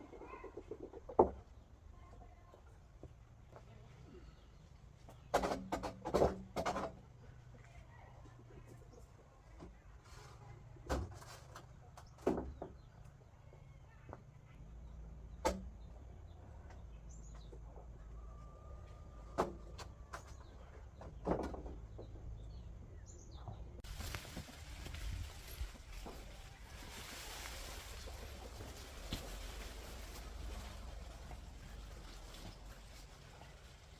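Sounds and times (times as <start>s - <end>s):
sharp knocks and clunks: 5.1s - 7.0s, 19.3s - 22.4s
rustling noise: 23.8s - 33.9s.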